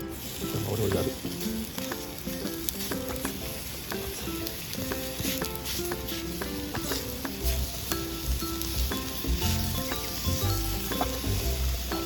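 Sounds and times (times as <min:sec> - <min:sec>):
patty sizzling in a pan: 0:00.0 - 0:12.0
plucked melody with bass: 0:00.7 - 0:12.0.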